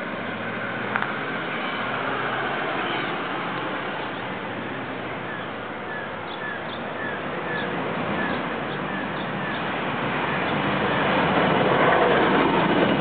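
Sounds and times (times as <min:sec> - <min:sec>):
background rush of noise: 0:00.0 - 0:13.0
small bird chirping: 0:05.3 - 0:09.7.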